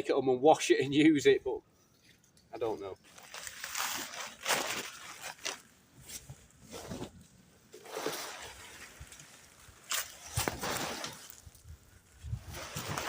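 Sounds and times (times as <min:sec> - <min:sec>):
rustling of fabric and tarp: 0:02.6 - 0:13.0.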